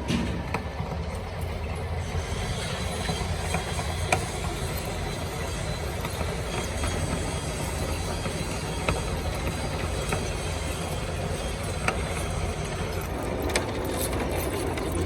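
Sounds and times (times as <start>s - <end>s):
workshop machinery humming: 0.0s - 15.0s.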